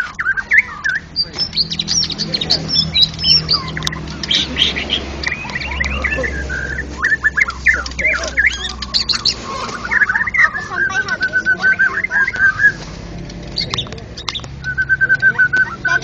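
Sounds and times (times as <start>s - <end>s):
songbird singing whistles and chatters: 0.0s - 12.8s, 13.5s - 16.0s
other songbirds singing: 0.0s - 16.0s.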